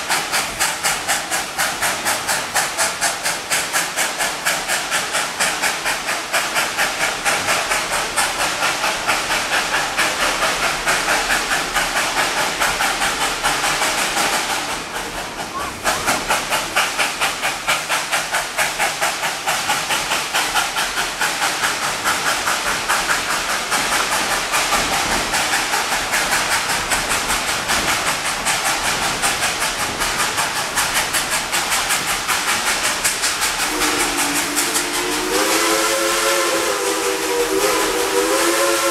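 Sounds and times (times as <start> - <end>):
steam locomotive chuffing: 0.0 - 38.9
steam whistle blowing: 33.6 - 38.9.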